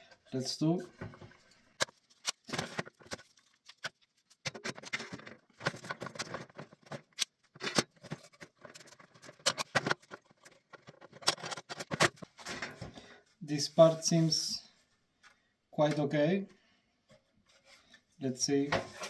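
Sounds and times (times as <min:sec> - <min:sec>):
clamps clicking and rattling: 0:04.4 - 0:12.8.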